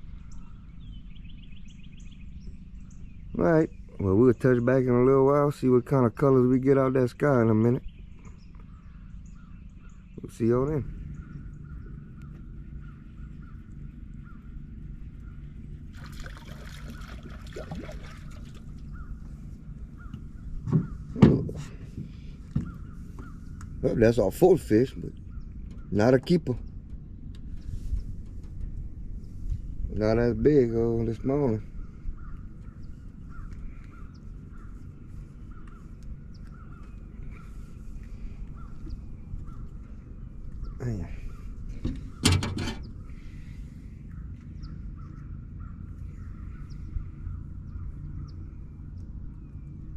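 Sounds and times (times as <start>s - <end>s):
steady low hum: 0.0s - 49.9s
steady low rumble: 0.0s - 49.9s
crows cawing: 16.3s - 19.3s, 32.2s - 39.6s.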